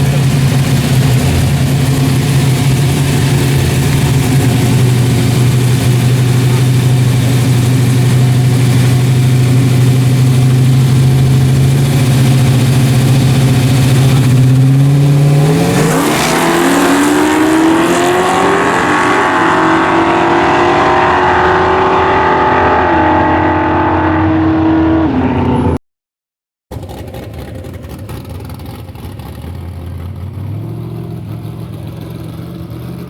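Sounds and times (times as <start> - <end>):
race truck engine revving: 0.0 - 25.8.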